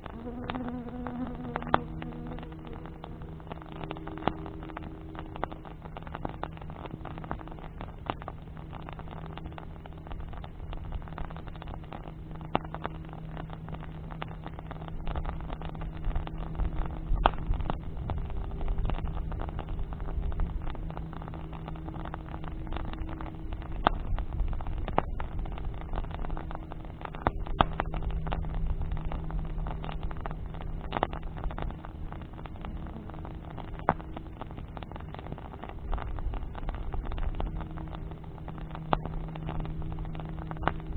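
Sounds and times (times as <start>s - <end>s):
bonfire crackling and popping: 0.0s - 40.9s
low motor hum: 0.0s - 40.9s.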